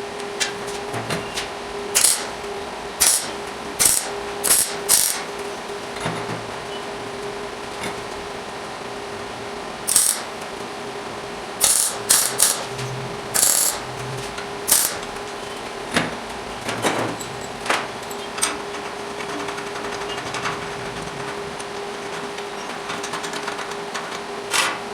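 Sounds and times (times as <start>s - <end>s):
steel parts clanking: 2.0s - 2.4s, 3.0s - 5.3s, 9.9s - 10.3s, 11.6s - 14.1s, 14.7s - 15.1s.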